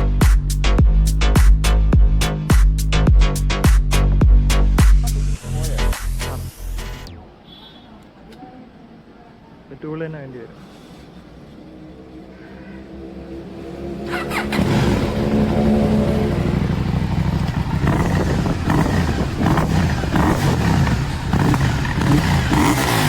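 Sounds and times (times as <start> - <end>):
motorcycle engine revving: 13.1 - 23.0.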